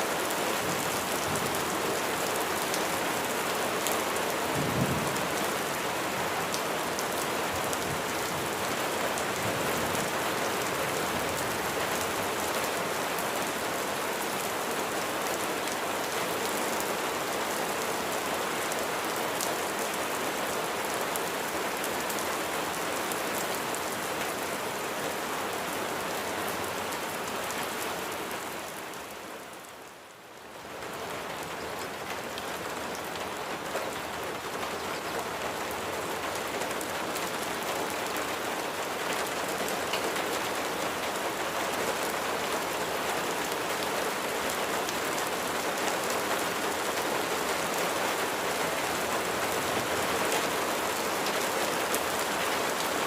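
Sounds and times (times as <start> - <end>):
dense rain pattering: 0.0 - 53.0.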